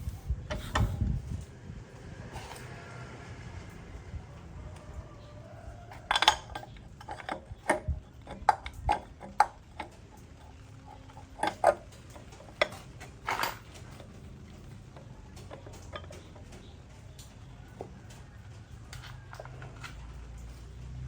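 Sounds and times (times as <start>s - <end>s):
metal tools clinking: 5.9s - 16.7s.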